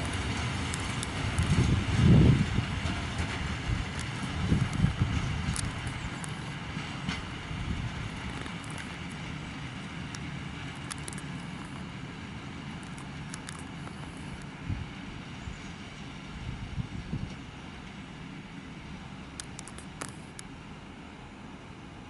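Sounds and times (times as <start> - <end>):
freight train rumbling on track: 0.0 - 22.0
sharp clicks: 3.9 - 6.6, 8.1 - 9.2, 10.1 - 11.9, 12.8 - 14.5, 19.3 - 20.5.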